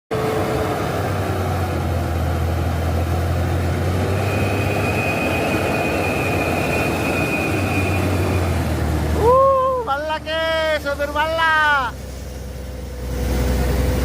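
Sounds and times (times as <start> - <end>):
diesel truck engine drone: 0.1 - 14.0
thin high whistle: 4.1 - 9.8.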